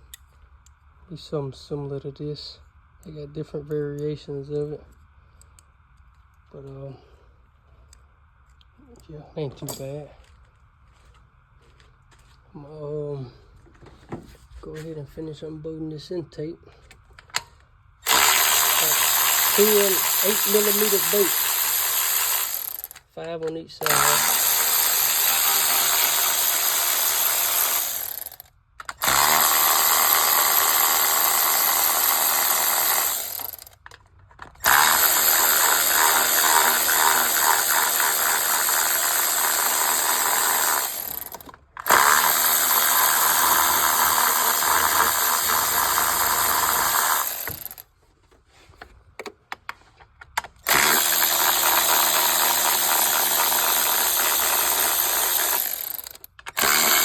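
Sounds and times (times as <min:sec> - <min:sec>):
ratchet ratcheting: 0:18.0 - 0:23.1, 0:23.8 - 0:47.9, 0:50.3 - 0:57.0.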